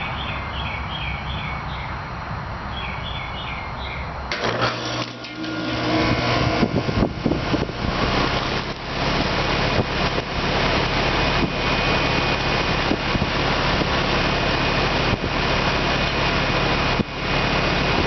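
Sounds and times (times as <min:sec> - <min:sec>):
fan air rushing: 0:03.7 - 0:18.0.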